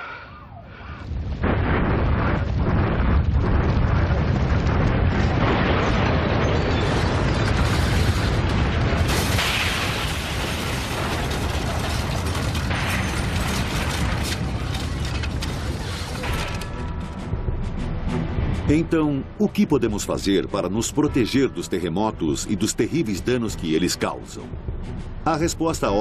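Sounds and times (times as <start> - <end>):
loud continuous rumble: 1.1 - 18.8
objects rattling and clattering: 6.8 - 17.1.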